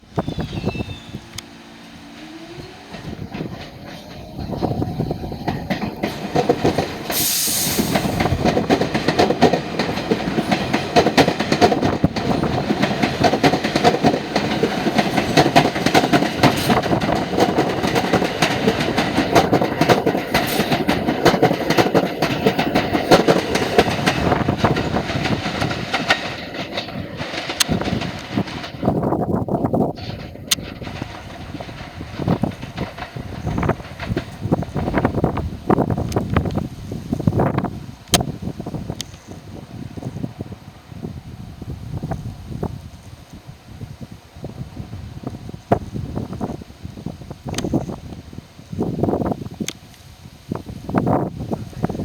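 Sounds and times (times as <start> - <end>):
subway train wheels clattering: 0.0 - 52.0
brief high hiss: 7.1 - 8.2.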